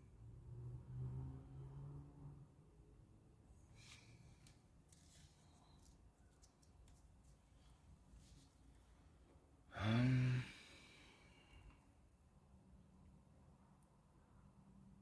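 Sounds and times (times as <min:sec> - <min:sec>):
man sighing: 0:09.7 - 0:11.5.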